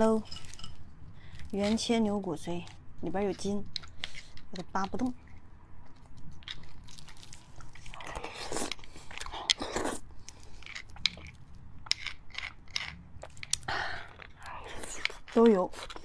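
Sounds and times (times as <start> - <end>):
chewing bone marrow and sinew: 5.2 - 16.0.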